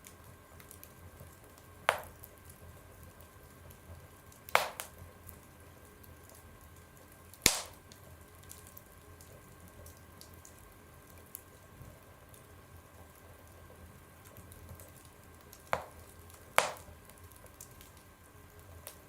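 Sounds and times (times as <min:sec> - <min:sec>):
firewood crackling and popping: 0:00.0 - 0:19.0
low hiss: 0:01.9 - 0:02.2, 0:04.5 - 0:05.1, 0:07.4 - 0:08.0, 0:15.8 - 0:17.0.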